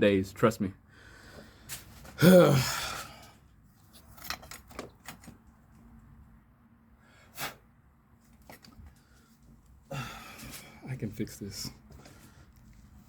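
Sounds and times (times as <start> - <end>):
man groaning: 2.2 - 3.0.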